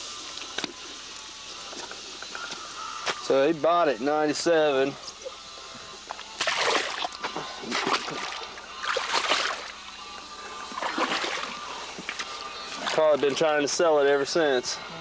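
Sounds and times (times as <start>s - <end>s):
water splashing and sloshing: 0.2s - 3.2s, 5.0s - 13.9s.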